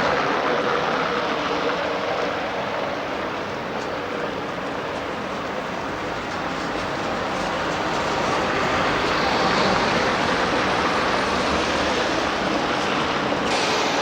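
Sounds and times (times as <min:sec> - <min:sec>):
passing vehicles rushing: 0:04.0 - 0:14.0.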